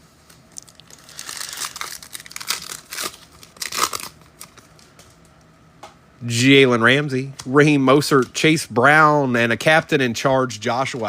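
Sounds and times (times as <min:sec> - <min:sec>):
plastic wrapper crinkling and tearing: 0:00.3 - 0:05.3.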